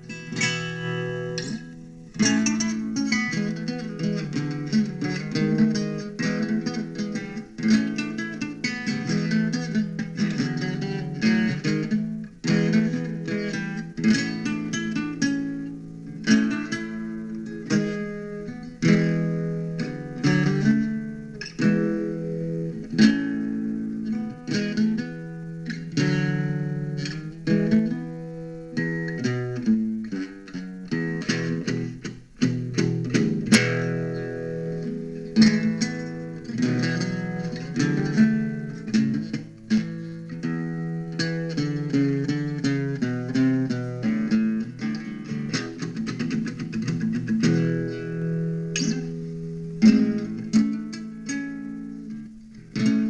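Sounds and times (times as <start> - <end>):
guitar playing: 0.0 - 53.0.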